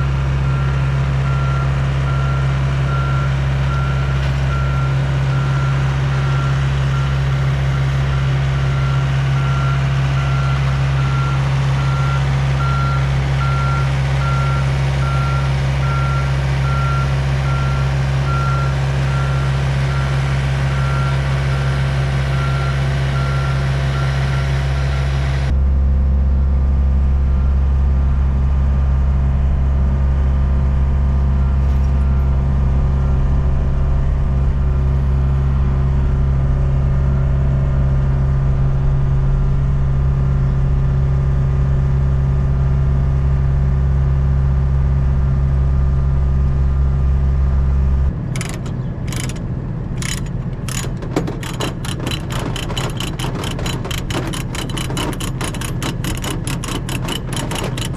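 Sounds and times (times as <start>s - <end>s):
diesel engine running: 0.0s - 57.9s
back-up alarm beeping: 0.4s - 24.6s, 50.0s - 57.9s.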